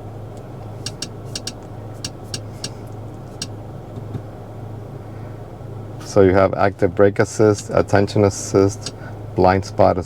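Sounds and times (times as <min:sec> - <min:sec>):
car engine idling: 0:00.0 - 0:09.4
control buttons clicking: 0:00.8 - 0:04.1.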